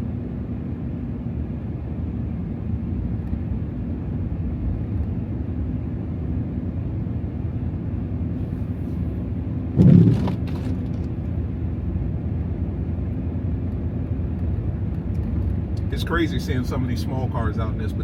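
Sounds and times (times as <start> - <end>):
thump with sharp knocks: 9.8 - 10.9.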